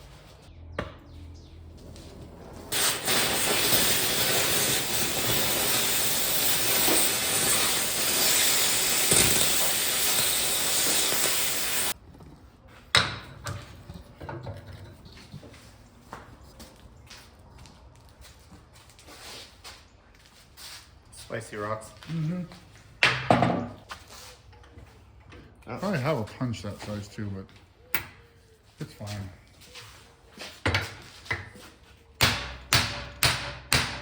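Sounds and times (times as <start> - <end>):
cutting torch hissing: 2.7 - 12.0.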